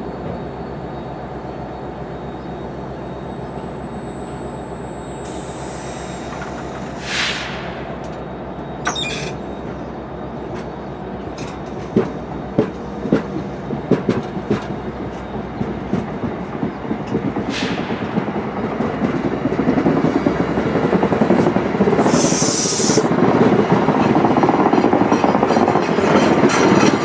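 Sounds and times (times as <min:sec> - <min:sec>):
train rumbling past: 0:00.0 - 0:27.0.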